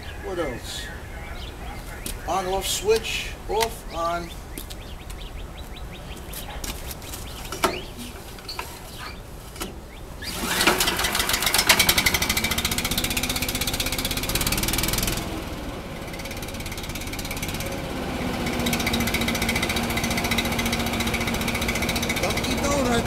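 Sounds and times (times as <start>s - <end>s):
small engine running fast: 10.2s - 23.0s.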